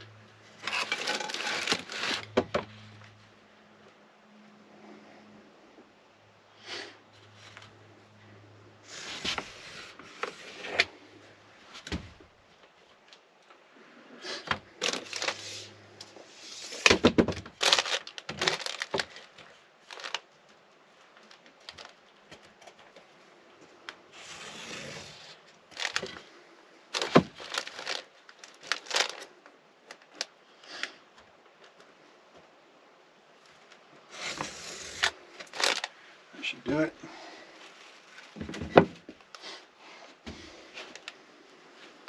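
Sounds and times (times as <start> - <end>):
foil mat crinkling and rustling: 0.6 - 2.7, 14.4 - 22.6, 24.2 - 26.3, 26.9 - 30.4, 34.2 - 36.0.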